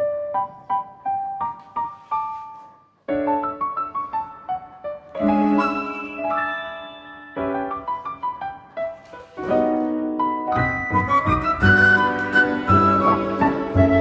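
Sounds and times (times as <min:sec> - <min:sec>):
solo piano music: 0:00.0 - 0:14.0.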